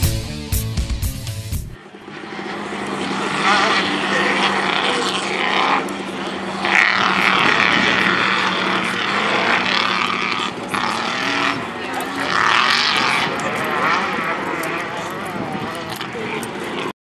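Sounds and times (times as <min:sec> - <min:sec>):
music: 0:00.0 - 0:01.8
race truck engines revving: 0:00.0 - 0:17.0.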